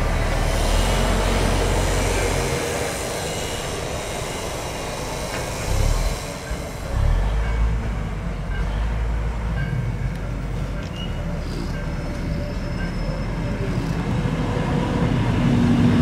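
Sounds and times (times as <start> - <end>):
diesel engine running low: 0.0 - 16.0
electric train approaching: 0.0 - 16.0
wheel and rail noise: 0.0 - 16.0
faint wheel squeal: 10.6 - 14.2.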